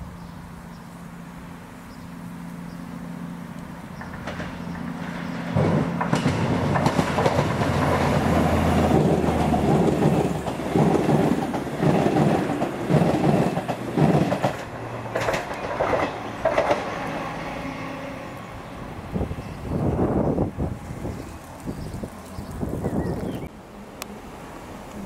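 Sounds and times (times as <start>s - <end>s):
train wheels clattering over rail joints: 3.9s - 17.1s.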